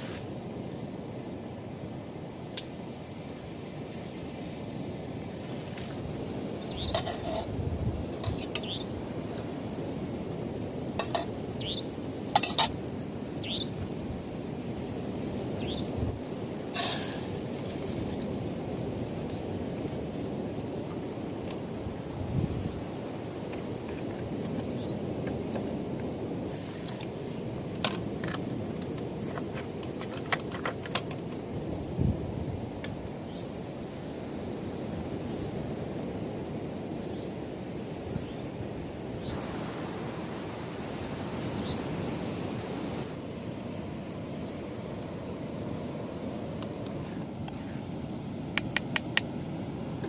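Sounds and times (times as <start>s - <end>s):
wind: 0.0s - 50.0s
high rising animal chirp: 8.6s - 8.9s, 11.6s - 11.9s, 13.4s - 13.7s
sharp clicks and taps: 48.6s - 49.3s.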